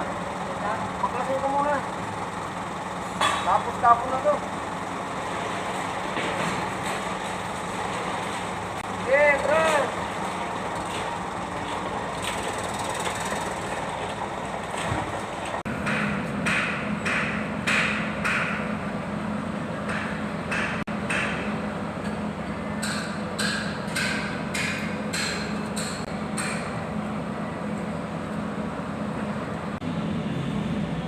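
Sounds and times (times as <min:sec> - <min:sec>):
hammer striking metal: 0:15.8 - 0:18.8, 0:19.8 - 0:26.8.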